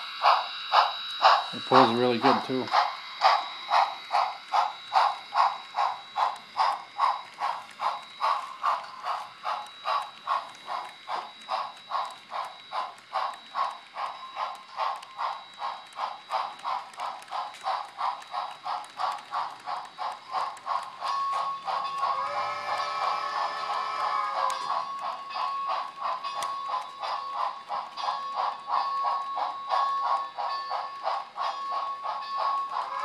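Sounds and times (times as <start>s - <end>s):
model locomotive steam chuffing: 0.0s - 33.0s
steam whistle: 22.1s - 24.7s.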